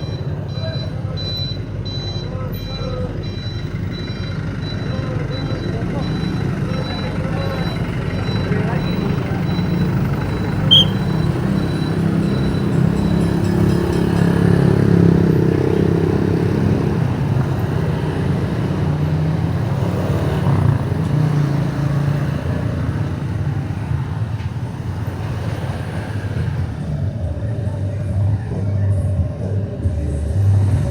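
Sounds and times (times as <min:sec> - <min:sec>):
motorcycle engine running: 0:04.3 - 0:28.0
short high chirp: 0:10.6 - 0:12.4.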